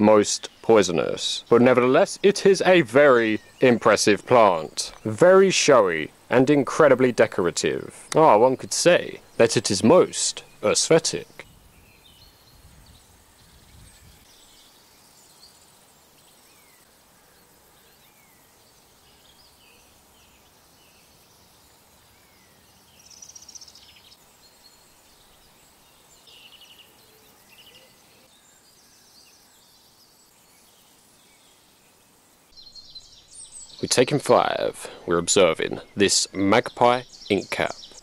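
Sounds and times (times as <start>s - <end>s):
bird twittering: 35.6s - 38.0s.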